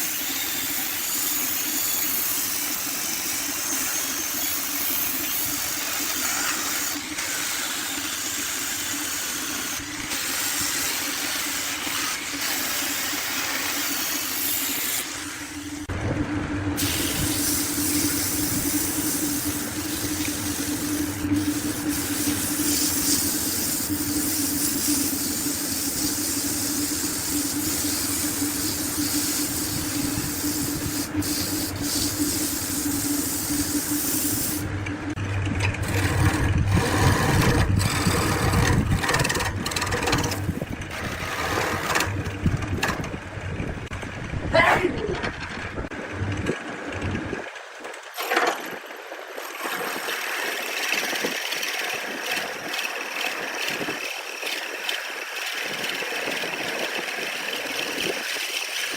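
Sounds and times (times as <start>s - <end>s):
wood cutting hiss: 0.0s - 15.8s, 16.8s - 34.7s
wood lathe motor hum: 0.0s - 44.1s, 45.9s - 58.9s.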